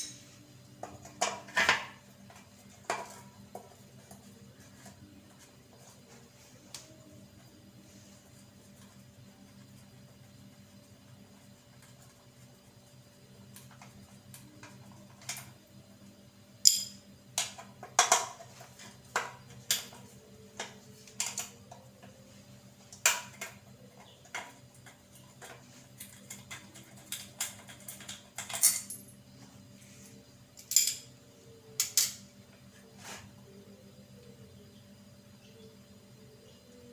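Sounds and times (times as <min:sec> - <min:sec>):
faint steady hum: 0:00.0 - 0:36.9
metal tools clinking and knocking: 0:26.0 - 0:29.1, 0:30.6 - 0:31.1.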